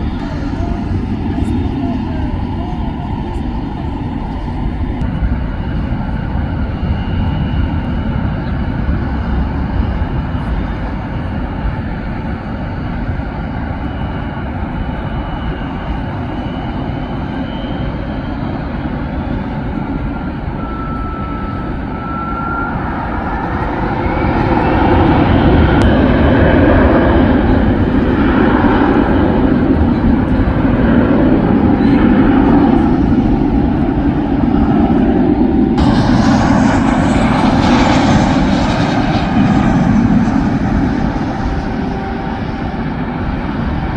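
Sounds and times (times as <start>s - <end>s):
airplane engines with rising whine: 0.0s - 43.9s.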